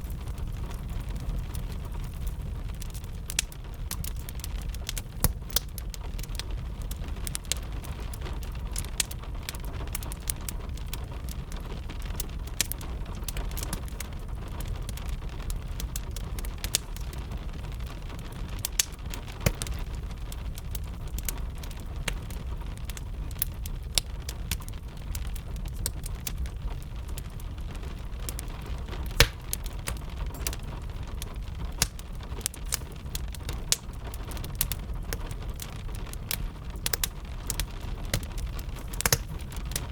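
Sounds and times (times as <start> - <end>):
rain: 0.0 - 39.9
wood fire crackling and popping: 0.0 - 39.9.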